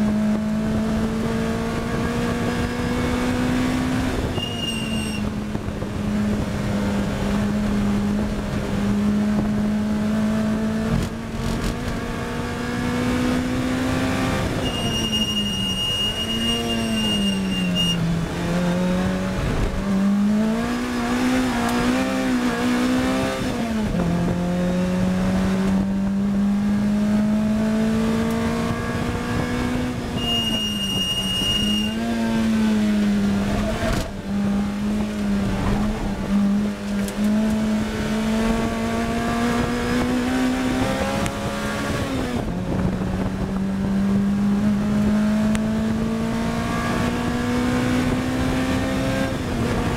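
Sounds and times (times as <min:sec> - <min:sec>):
car engine revving under acceleration: 0:00.0 - 0:49.9
road and wind noise: 0:00.0 - 0:49.9
high beep: 0:04.3 - 0:05.2, 0:14.6 - 0:18.0, 0:30.2 - 0:32.1.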